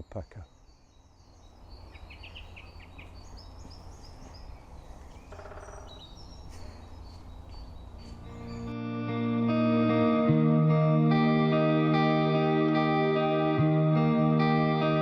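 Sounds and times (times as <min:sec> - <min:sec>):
songbirds singing and calling: 0:00.0 - 0:08.8.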